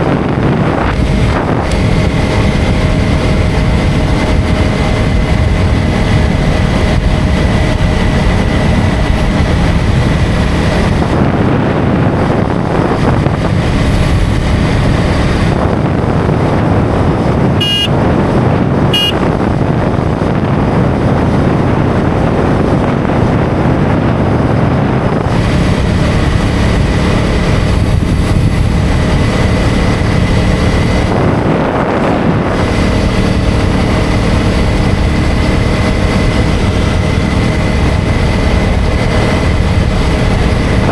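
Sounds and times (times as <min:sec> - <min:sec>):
motorcycle engine running: 0:00.0 - 0:40.9
wind rush over microphone: 0:00.0 - 0:40.9
vehicle horn beeps: 0:17.6 - 0:18.1, 0:18.9 - 0:19.4.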